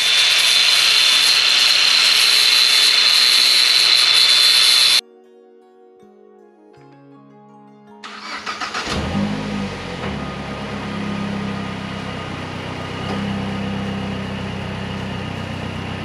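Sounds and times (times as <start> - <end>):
starter motor cranking: 0.0 - 5.0, 8.1 - 16.0
car engine starting and idling: 8.1 - 16.0.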